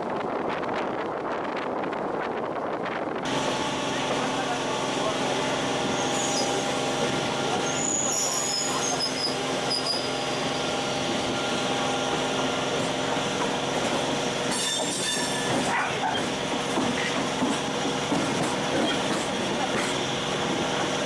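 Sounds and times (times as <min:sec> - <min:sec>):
electric train rumbling on rails: 0:00.0 - 0:21.0
high wheel squeal: 0:05.8 - 0:06.8, 0:07.5 - 0:10.8, 0:14.5 - 0:16.3.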